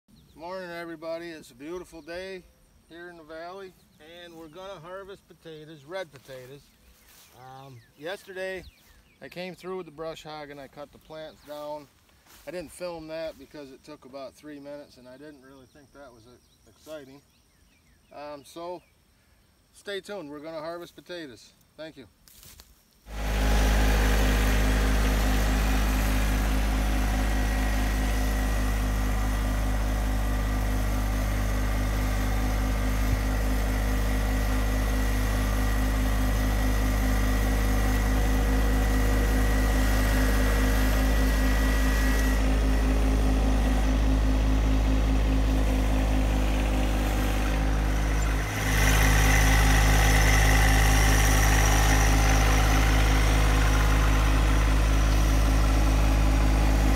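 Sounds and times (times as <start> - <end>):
tractor diesel engine running: 23.1 - 56.9.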